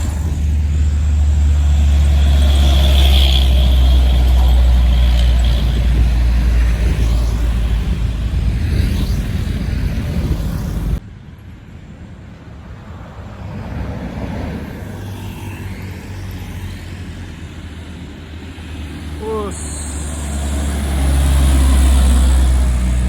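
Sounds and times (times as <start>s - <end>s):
heavy truck engine labouring: 0.0s - 8.7s, 18.5s - 23.0s
quieter engine rumble: 0.0s - 11.0s, 17.3s - 23.0s.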